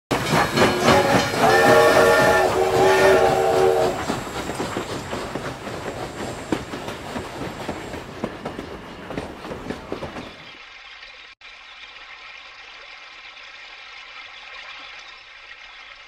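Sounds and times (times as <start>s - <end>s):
train wheels clattering: 0.1s - 10.5s
train whistle blasts: 0.6s - 4.2s.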